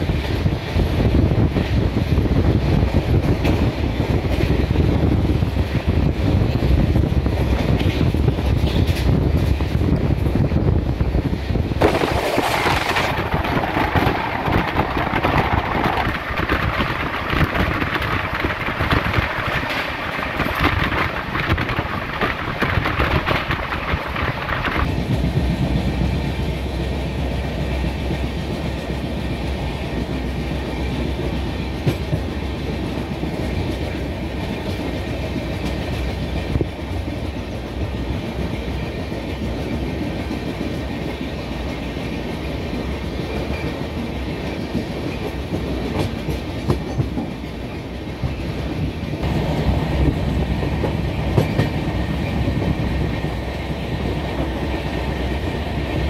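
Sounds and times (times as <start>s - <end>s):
train wheels rolling over rails: 0.0s - 56.0s
low rumble: 11.7s - 25.2s.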